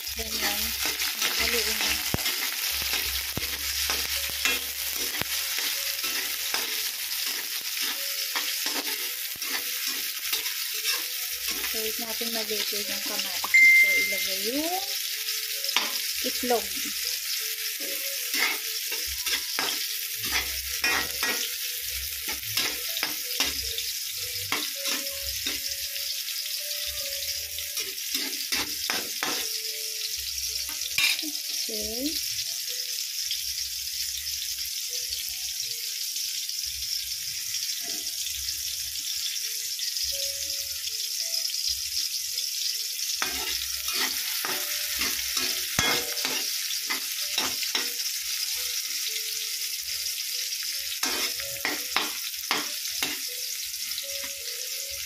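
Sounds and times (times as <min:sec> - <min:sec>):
onions sizzling in hot oil: 0:00.0 - 0:55.0
metal spatula scraping pan: 0:00.3 - 0:11.8, 0:18.2 - 0:21.5, 0:22.2 - 0:23.6, 0:27.8 - 0:29.6, 0:43.2 - 0:47.9, 0:51.0 - 0:53.2.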